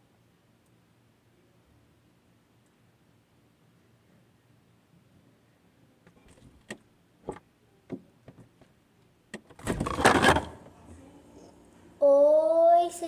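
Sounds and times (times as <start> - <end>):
fridge door pulled open: 9.5 - 10.7.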